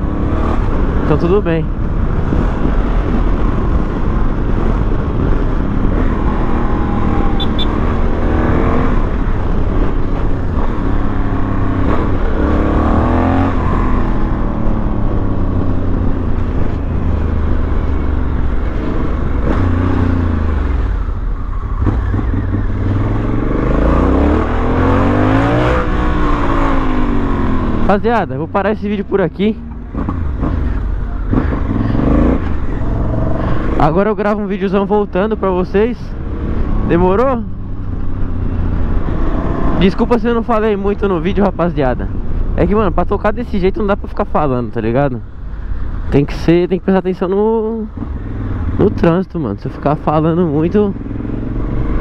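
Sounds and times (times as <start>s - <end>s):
motorcycle engine accelerating: 0.0s - 28.3s, 28.9s - 34.4s, 35.0s - 40.0s, 49.8s - 52.0s
road and wind noise: 0.0s - 52.0s.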